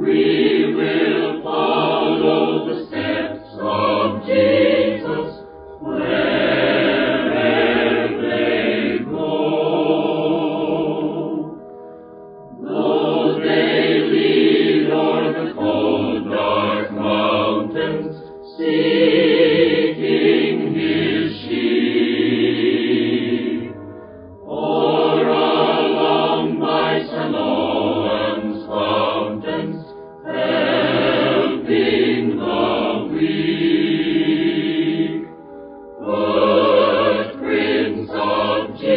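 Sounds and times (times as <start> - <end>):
choir singing a hymn: 0.0 - 11.6, 12.5 - 38.9.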